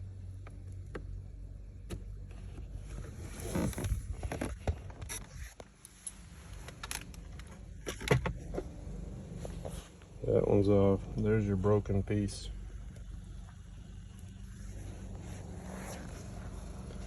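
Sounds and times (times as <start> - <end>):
steady low hum: 0.0 - 17.0
scraping and rustling: 14.5 - 17.0.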